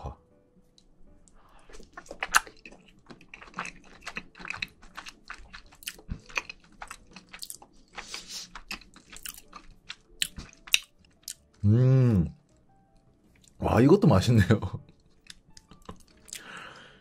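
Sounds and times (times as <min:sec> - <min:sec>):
wet chewing and mouth clicks: 0:01.2 - 0:11.6, 0:14.8 - 0:16.6.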